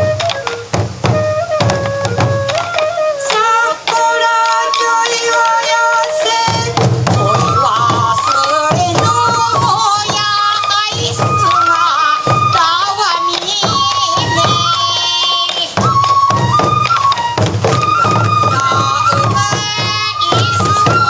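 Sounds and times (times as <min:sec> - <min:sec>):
bamboo flute melody: 0:00.0 - 0:21.0
taiko drumming: 0:00.0 - 0:21.0.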